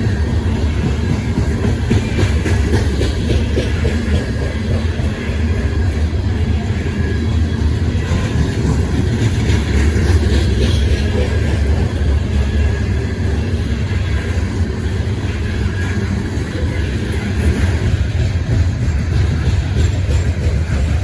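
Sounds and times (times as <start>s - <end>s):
train rumbling by: 0.0s - 21.0s
wheels ringing on rails: 0.0s - 21.0s.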